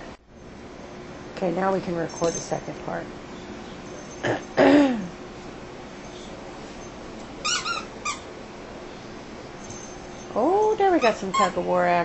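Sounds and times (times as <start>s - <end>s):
puppy whining: 6.1s - 8.3s
puppy high-pitched squeals: 7.4s - 8.3s.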